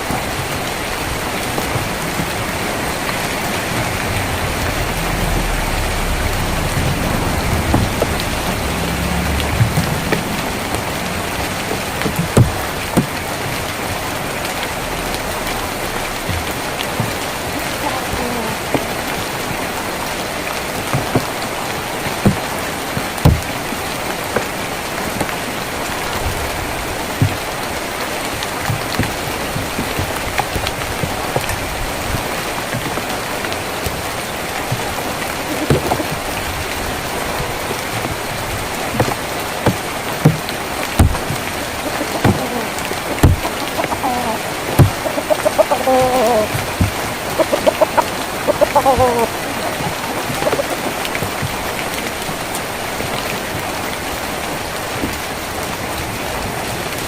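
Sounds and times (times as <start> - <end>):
heavy raindrops tapping: 0.0 - 57.0
rain on a tin roof: 0.0 - 57.0
chicken clucking: 34.7 - 36.5, 41.6 - 51.5.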